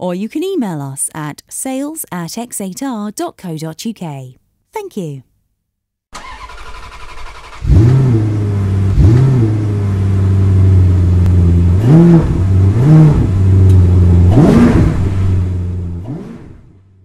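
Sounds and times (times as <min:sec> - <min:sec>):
car engine idling: 0:06.2 - 0:16.0
engine throttle blips: 0:06.2 - 0:16.9.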